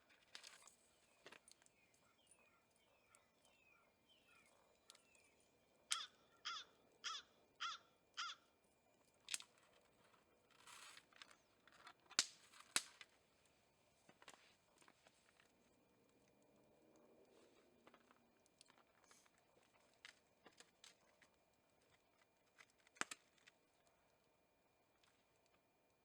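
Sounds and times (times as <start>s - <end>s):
crow cawing: 5.9s - 8.5s.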